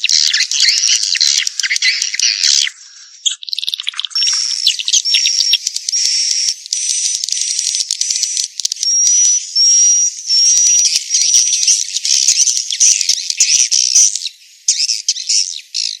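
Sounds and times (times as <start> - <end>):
swiftlet twittering chirps: 0.0 - 6.5.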